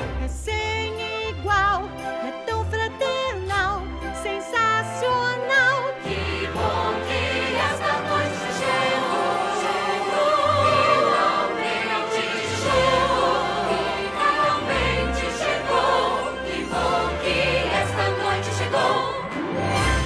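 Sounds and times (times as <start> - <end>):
orchestral accompaniment: 0.0 - 20.0
choir singing long notes: 6.0 - 20.0.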